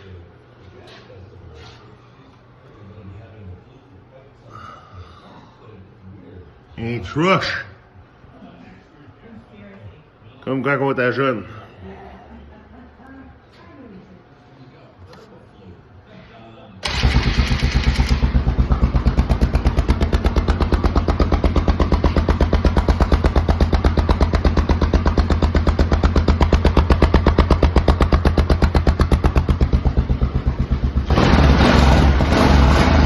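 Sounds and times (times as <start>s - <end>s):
atv engine idling: 16.8s - 33.0s.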